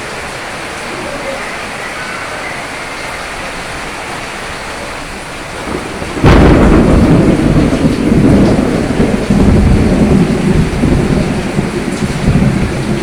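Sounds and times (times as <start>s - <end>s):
steady rain: 0.0s - 13.0s
thunder clap and rumble: 5.1s - 13.0s.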